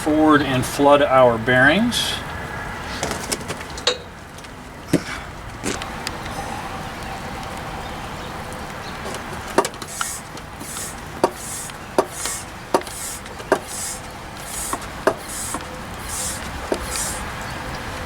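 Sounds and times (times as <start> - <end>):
pump hissing: 5.7 - 18.0
hand pump clicking: 9.0 - 17.4.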